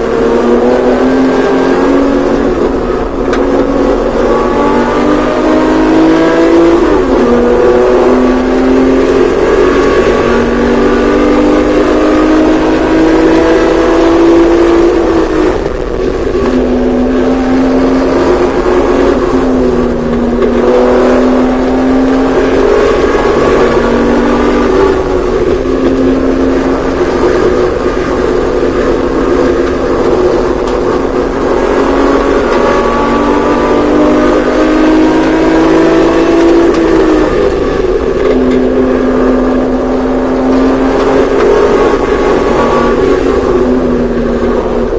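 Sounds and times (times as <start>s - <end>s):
car engine accelerating hard: 0.0s - 44.9s.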